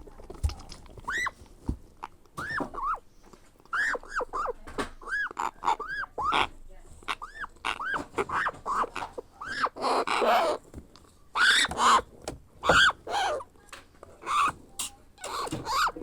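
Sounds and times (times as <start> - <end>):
baby parrot begging calls: 2.4 - 3.0, 3.7 - 6.5, 7.1 - 10.6, 11.4 - 13.5, 14.2 - 14.5, 15.2 - 16.0.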